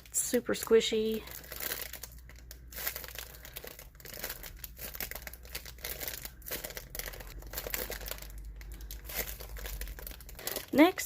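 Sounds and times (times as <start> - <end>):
squishy toy crinkling when squeezed: 0.0 - 11.0.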